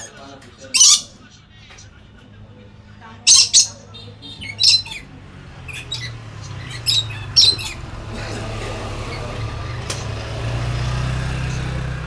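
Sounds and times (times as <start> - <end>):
parrot squawking: 0.0 - 1.2, 3.2 - 9.8.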